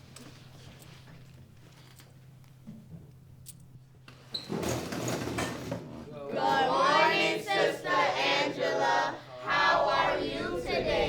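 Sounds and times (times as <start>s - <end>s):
group of voices singing: 6.4s - 11.0s.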